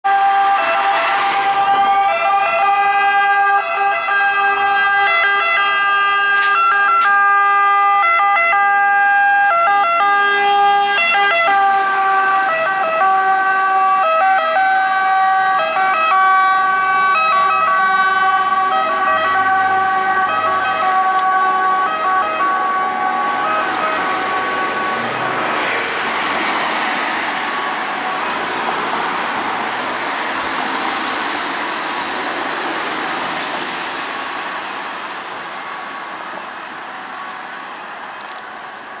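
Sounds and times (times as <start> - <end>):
fire engine two-tone siren: 0.0 - 30.6
vehicle and road noise: 0.0 - 39.0.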